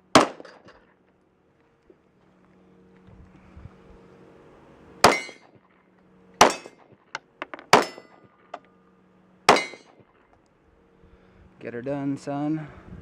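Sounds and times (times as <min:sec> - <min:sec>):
pistol shots: 0:00.1 - 0:00.6, 0:05.0 - 0:05.4, 0:06.4 - 0:06.8, 0:07.7 - 0:08.1, 0:09.5 - 0:09.9
steel target ringing clang: 0:05.0 - 0:05.5, 0:06.4 - 0:06.8, 0:07.7 - 0:08.2, 0:09.5 - 0:10.0.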